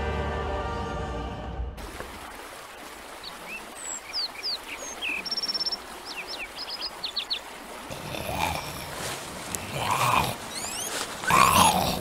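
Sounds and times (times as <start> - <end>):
small birds chirping: 3.1 - 12.0.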